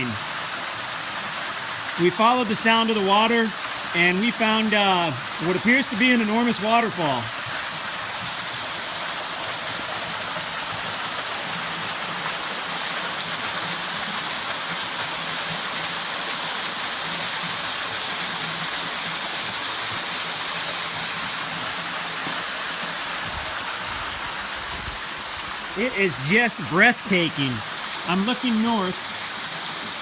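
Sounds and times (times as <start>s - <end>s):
waterfall pouring into pool: 0.0s - 30.0s.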